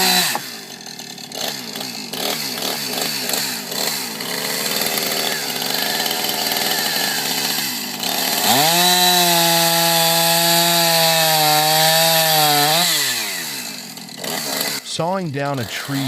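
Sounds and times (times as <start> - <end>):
chainsaw engine revving: 0.0 - 16.0.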